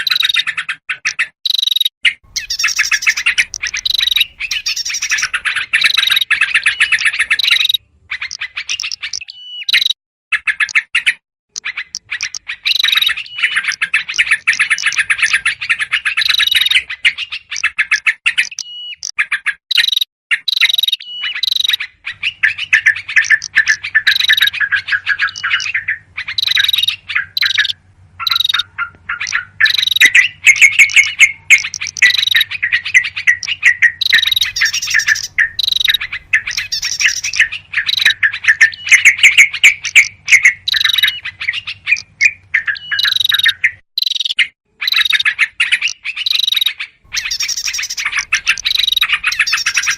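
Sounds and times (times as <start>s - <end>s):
bulbuls chattering: 2.3s - 9.2s, 21.4s - 43.8s, 47.1s - 49.9s.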